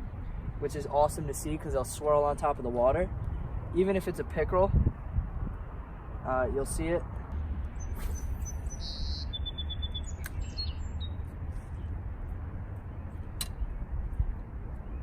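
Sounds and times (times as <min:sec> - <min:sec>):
songbird chirping: 0:07.6 - 0:12.0.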